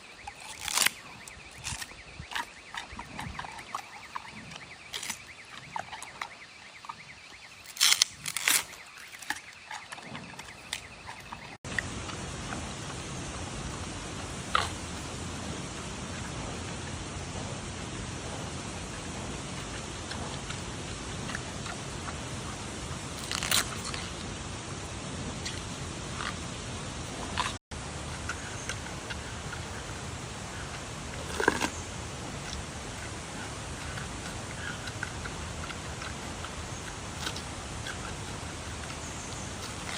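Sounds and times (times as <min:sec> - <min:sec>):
bamboo stalks snapping: 0:00.4 - 0:01.0, 0:07.6 - 0:09.4, 0:23.2 - 0:23.7.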